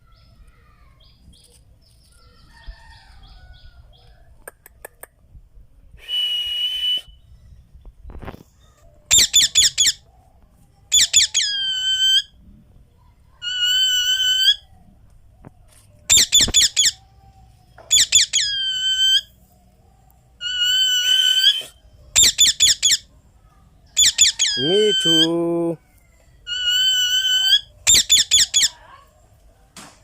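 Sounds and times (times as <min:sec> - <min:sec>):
parrot calling loudly: 0:09.1 - 0:10.0, 0:10.9 - 0:12.3, 0:13.4 - 0:14.6, 0:16.1 - 0:17.0, 0:17.8 - 0:19.3, 0:20.4 - 0:23.1, 0:23.9 - 0:25.6, 0:26.4 - 0:28.8.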